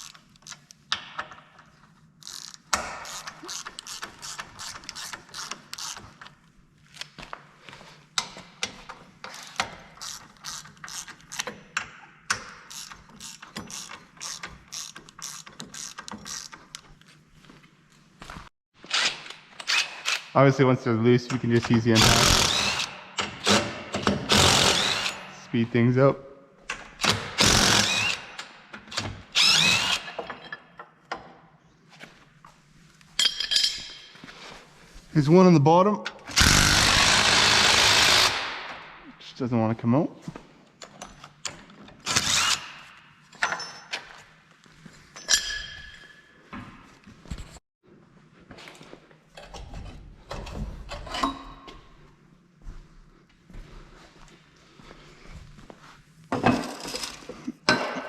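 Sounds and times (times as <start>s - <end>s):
hand ratchet clicking: 2.2s - 6.1s, 9.3s - 16.9s
impact wrench spinning: 2.2s - 6.2s, 9.3s - 11.7s, 12.3s - 16.8s, 22.0s - 25.3s, 27.1s - 28.5s, 29.4s - 30.2s, 36.3s - 38.8s, 42.1s - 42.9s.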